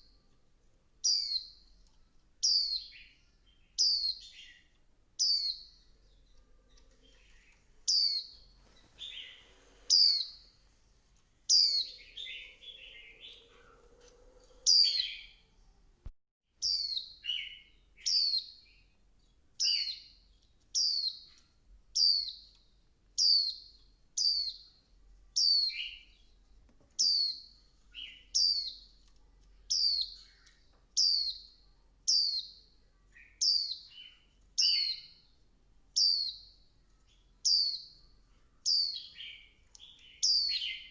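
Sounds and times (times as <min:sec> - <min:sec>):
bird high falling chirps: 0:11.5 - 0:15.4.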